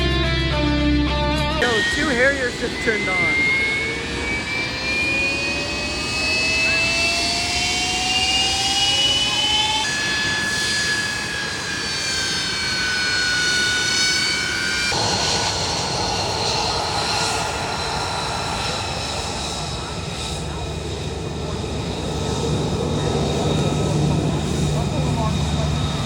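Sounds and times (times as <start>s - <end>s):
high whining tones: 1.6s - 26.0s
loud jet roar: 1.6s - 26.0s.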